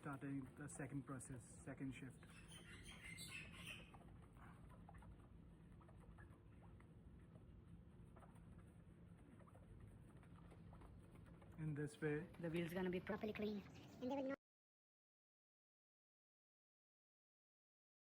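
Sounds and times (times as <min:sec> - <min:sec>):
faint background hum: 0:00.0 - 0:14.4.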